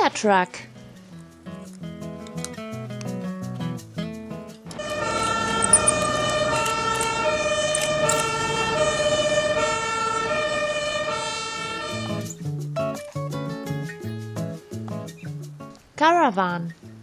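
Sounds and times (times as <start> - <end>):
truck driving: 4.6 - 12.3
two-tone fire truck siren: 4.8 - 12.3.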